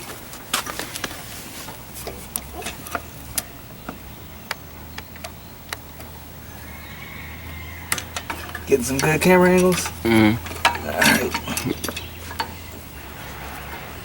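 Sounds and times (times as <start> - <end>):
small metal parts clicking: 7.8 - 13.4.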